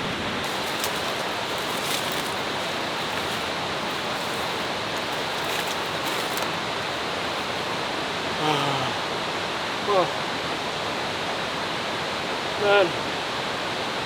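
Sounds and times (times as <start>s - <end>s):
waterfall roaring: 0.0s - 14.0s
faint crackles: 0.4s - 9.0s.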